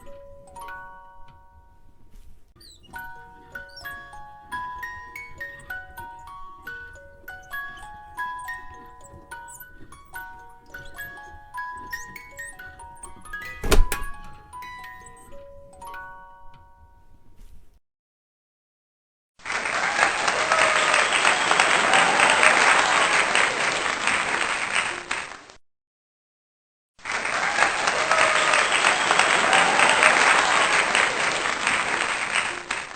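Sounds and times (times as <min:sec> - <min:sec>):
crowd cheering: 0:19.4 - 0:25.5, 0:27.0 - 0:32.9
crowd applause: 0:19.4 - 0:25.6, 0:27.0 - 0:32.9.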